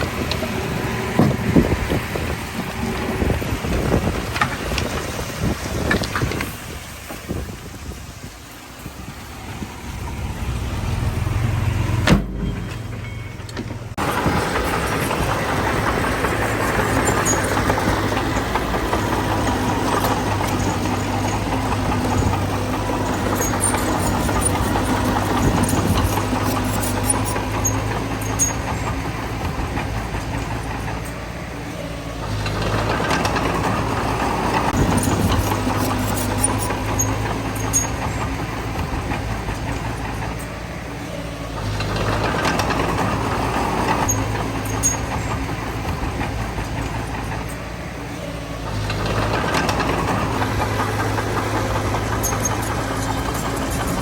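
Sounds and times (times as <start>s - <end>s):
heavy diesel engine under load: 0.0s - 54.0s
faint metallic clicks and squeaks: 16.8s - 29.2s, 34.6s - 43.0s, 43.9s - 54.0s.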